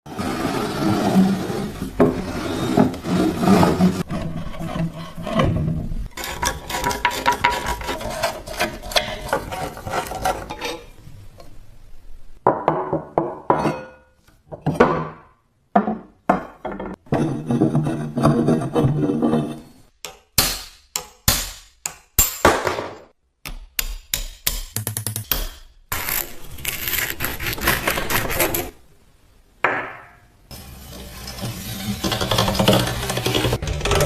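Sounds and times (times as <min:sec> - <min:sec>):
scraping rusty metal: 0:00.1 - 0:11.0, 0:30.8 - 0:34.0.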